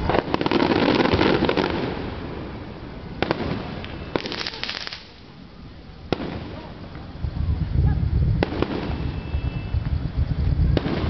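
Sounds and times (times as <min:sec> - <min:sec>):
firework bangs: 0:00.0 - 0:11.0
crackling of bursting shells: 0:03.2 - 0:05.3.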